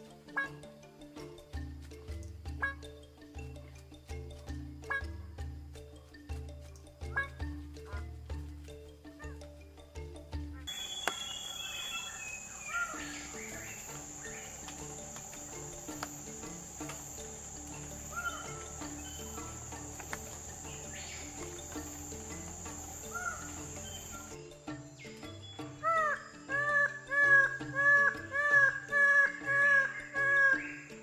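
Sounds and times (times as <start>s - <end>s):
high insect drone: 0.0s - 30.9s
short arched bird calls: 10.7s - 16.4s, 17.2s - 24.4s.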